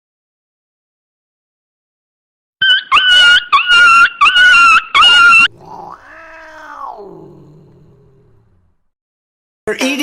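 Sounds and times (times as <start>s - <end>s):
cat yowling: 2.6s - 8.3s.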